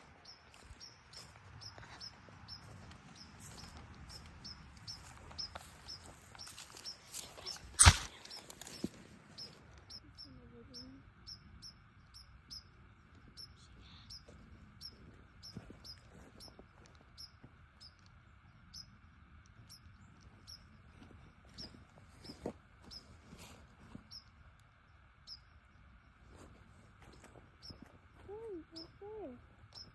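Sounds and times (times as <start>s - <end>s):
faint high bird chirps: 0.2s - 16.6s, 27.6s - 29.9s.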